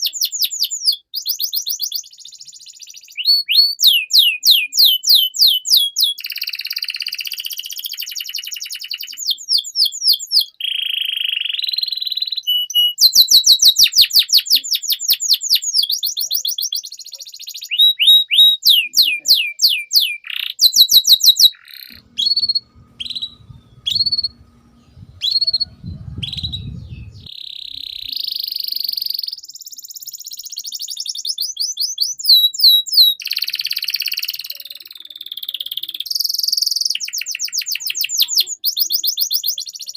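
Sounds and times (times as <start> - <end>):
canary singing: 0.0 - 39.9
low rumble: 22.0 - 27.3.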